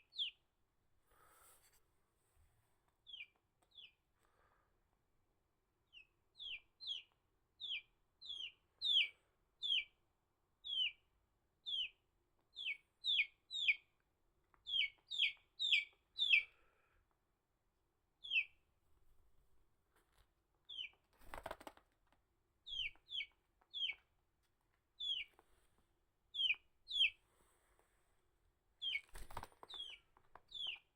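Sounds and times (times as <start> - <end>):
chick peeping: 0.0 - 0.4, 3.0 - 4.0, 5.8 - 10.0, 10.6 - 16.6, 18.2 - 18.6, 20.7 - 21.8, 22.6 - 24.2, 24.9 - 25.4, 26.3 - 27.2, 28.8 - 30.9.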